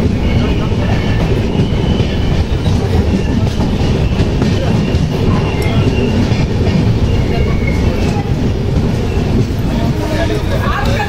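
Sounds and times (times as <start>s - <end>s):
passenger train rumbling: 0.0s - 11.0s.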